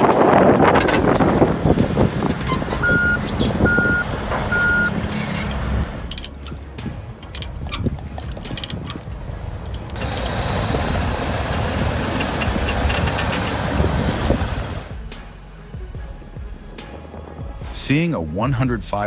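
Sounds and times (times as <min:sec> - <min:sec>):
heavy vehicle engine running: 0:00.0 - 0:15.2
clicks and knocks: 0:03.7 - 0:10.6.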